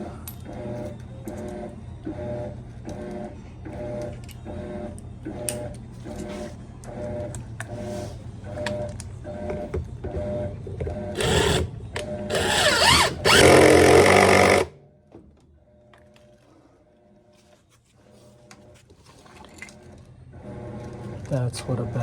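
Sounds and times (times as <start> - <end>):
power drill running in bursts: 11.2 - 11.7, 12.3 - 14.7.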